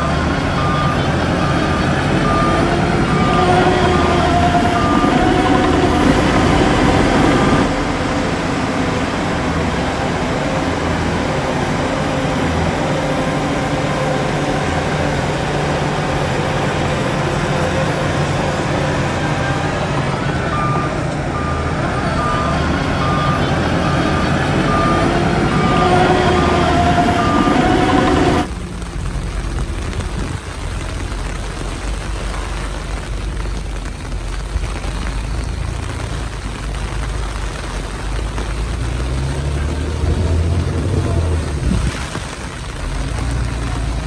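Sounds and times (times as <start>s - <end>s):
reversing alarm beeping: 0.0s - 28.5s
heavy diesel machinery running: 0.0s - 44.0s.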